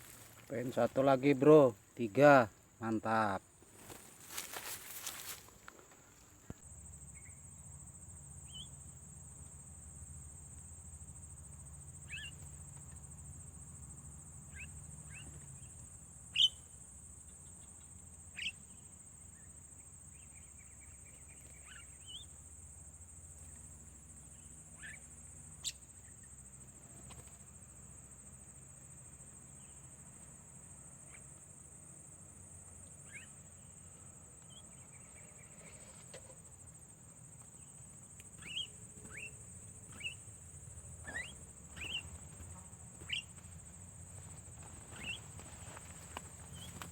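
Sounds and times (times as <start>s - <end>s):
high insect drone: 0.0s - 46.9s
sharp bird chirps: 38.4s - 40.2s, 41.0s - 42.3s, 43.0s - 43.3s, 45.0s - 45.3s.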